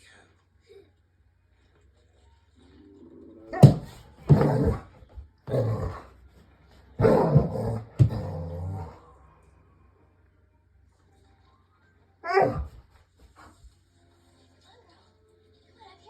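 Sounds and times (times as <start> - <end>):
dog barking and growling: 3.3 - 6.2, 6.9 - 9.2, 12.2 - 12.9.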